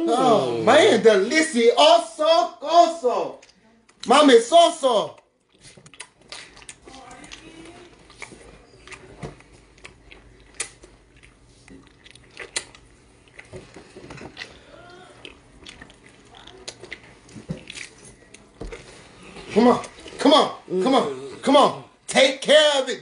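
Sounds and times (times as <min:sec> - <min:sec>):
mouth smacks and clicks: 0:05.2 - 0:06.8, 0:09.8 - 0:13.5
wet chewing and biting: 0:05.4 - 0:20.2.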